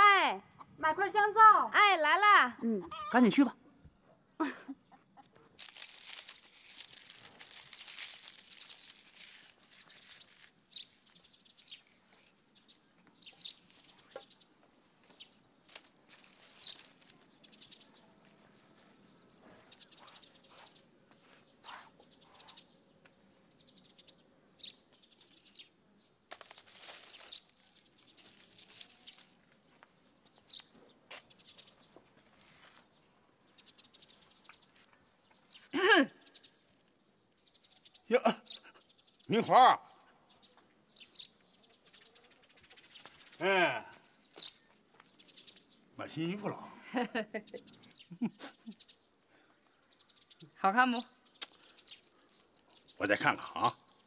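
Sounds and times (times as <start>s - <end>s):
small birds chirping: 0.2s - 54.0s
rustling: 5.5s - 22.4s, 25.0s - 25.7s, 26.3s - 29.9s, 31.1s - 32.9s, 36.2s - 37.8s, 41.9s - 45.7s, 51.4s - 54.0s.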